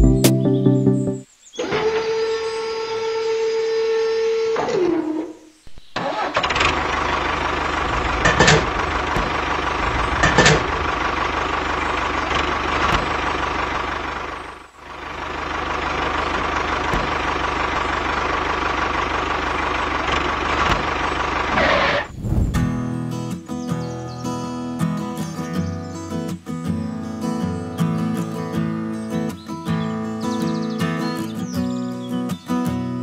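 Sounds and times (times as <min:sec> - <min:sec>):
tractor engine chugging: 0:06.0 - 0:23.0.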